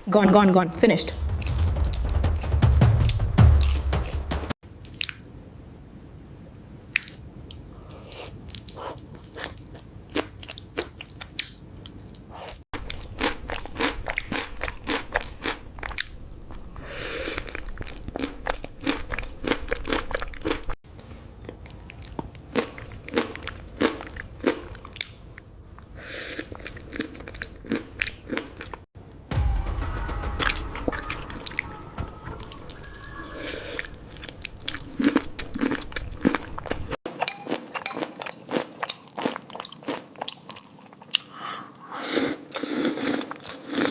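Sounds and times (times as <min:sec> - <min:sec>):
crunching and chewing food: 0:06.9 - 0:20.8, 0:21.4 - 0:28.9, 0:33.8 - 0:43.9.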